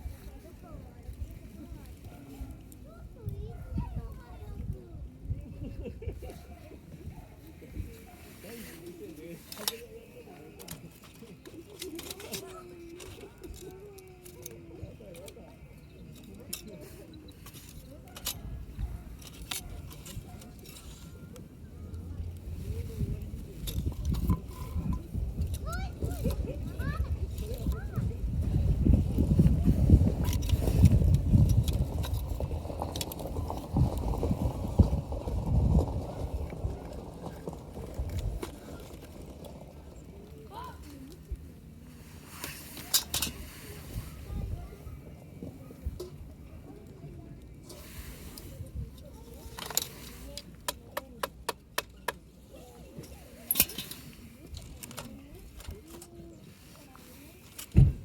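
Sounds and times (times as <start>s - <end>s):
wind buffeting microphone: 2.9s - 8.4s, 21.7s - 40.2s, 43.5s - 46.6s.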